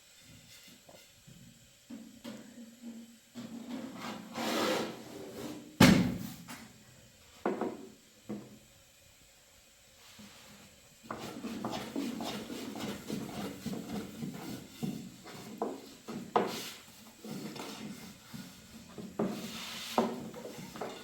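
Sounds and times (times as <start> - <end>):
objects knocking and scraping: 11.1 - 21.0.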